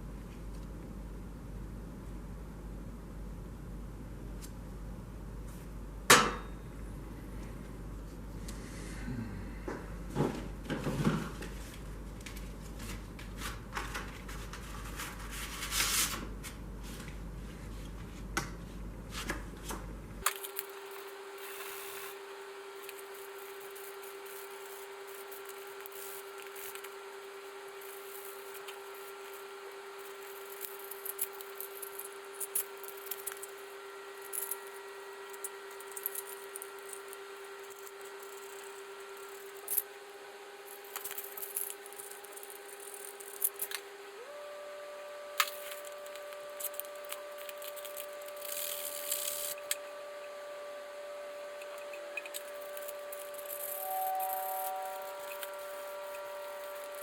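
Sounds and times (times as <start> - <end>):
faint steady hum: 0.0 - 57.0
faint steady tone: 51.0 - 57.0.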